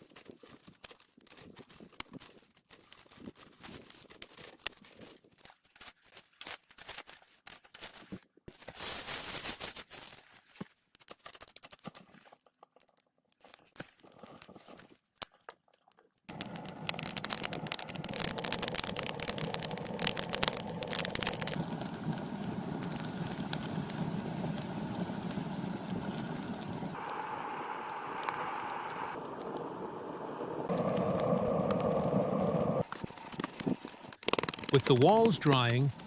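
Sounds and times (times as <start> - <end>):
steady rush: 16.3 - 32.9
wood fire crackling: 16.3 - 36.0.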